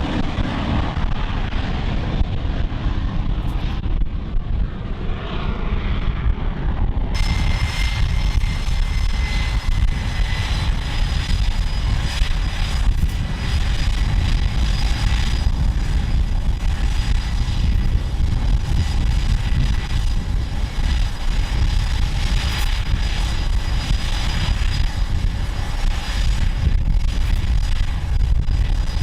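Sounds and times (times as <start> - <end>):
jet engines roaring: 0.0 - 29.0
faint high whine: 7.1 - 29.0.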